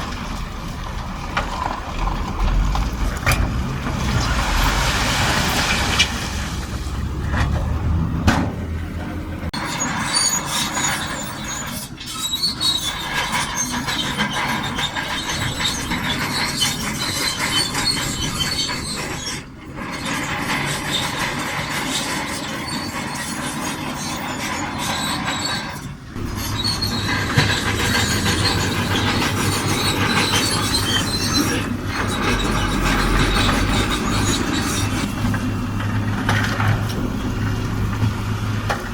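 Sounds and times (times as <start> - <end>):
bulldozer diesel engine under load: 0.0 - 38.9
steel tracks squealing: 9.0 - 38.9.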